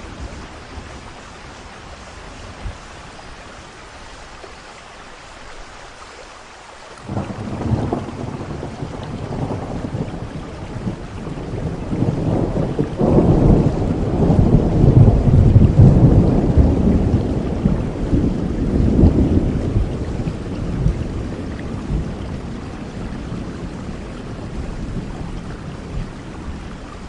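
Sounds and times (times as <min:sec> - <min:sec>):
steady rain hiss: 0:00.0 - 0:27.0
thunder rumbling: 0:07.0 - 0:27.0.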